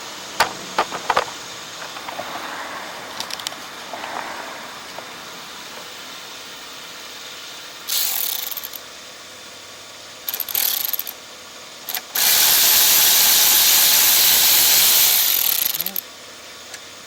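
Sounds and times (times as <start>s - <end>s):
compressed air tool hissing: 12.2s - 16.0s.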